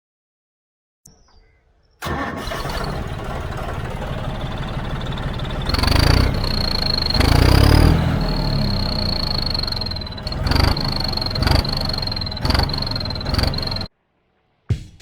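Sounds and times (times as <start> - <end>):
tractor diesel engine revving: 2.0 - 13.9
high steady turbo whistle: 4.4 - 13.9.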